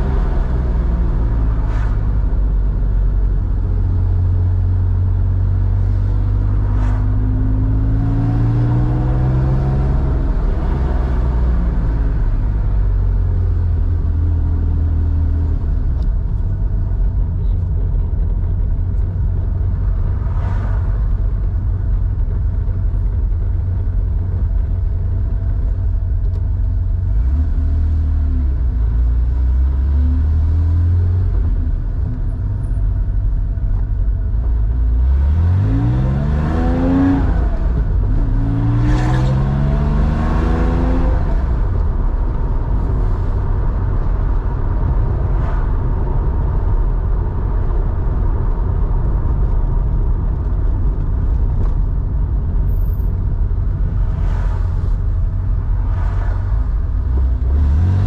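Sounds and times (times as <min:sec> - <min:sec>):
car engine running: 0:00.0 - 0:58.0
engine revving: 0:34.9 - 0:41.8, 0:57.1 - 0:58.0.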